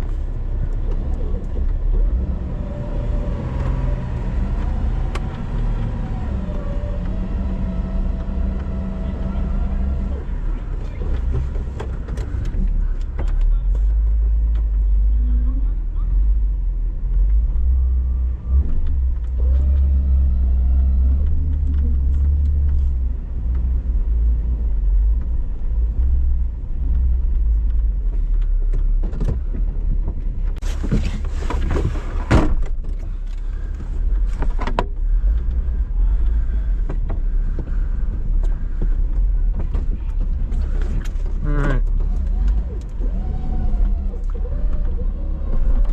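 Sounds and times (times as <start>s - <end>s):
vehicle engine low rumble: 0.0s - 45.9s.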